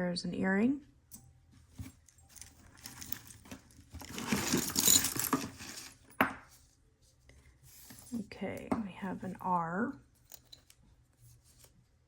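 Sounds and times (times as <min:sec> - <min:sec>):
jewelry clinking and jangling: 0:01.9 - 0:06.2, 0:10.1 - 0:10.8.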